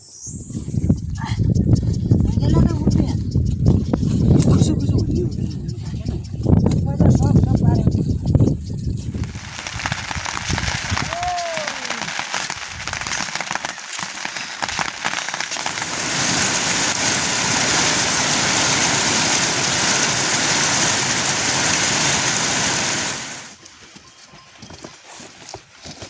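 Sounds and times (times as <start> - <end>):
heavy rain falling: 10.9 - 12.5, 13.4 - 23.6.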